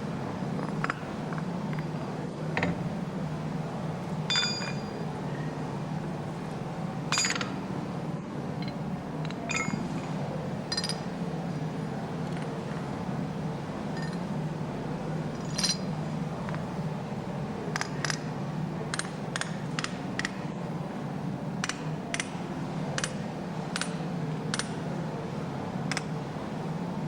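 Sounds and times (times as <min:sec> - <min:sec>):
steady low hum: 0:00.0 - 0:27.0
metal clinking on metal: 0:04.3 - 0:05.0, 0:07.1 - 0:07.5, 0:08.6 - 0:10.1, 0:10.7 - 0:11.1, 0:15.4 - 0:15.9.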